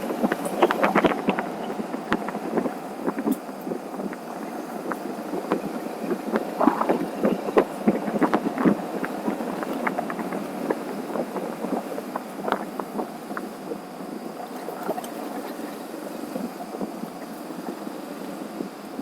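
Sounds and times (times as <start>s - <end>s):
wind buffeting microphone: 0.0s - 19.0s
short irregular thumps and pops: 0.1s - 13.6s.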